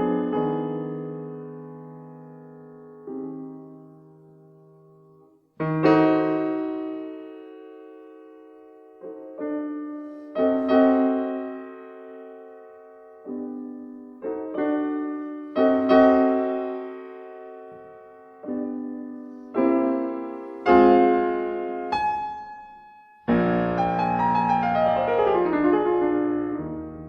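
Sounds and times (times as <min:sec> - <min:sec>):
piano chords ringing: 0:00.0 - 0:27.0.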